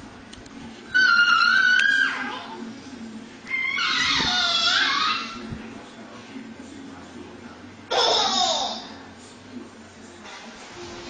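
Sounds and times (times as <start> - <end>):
baby laughing: 7.9 - 8.9.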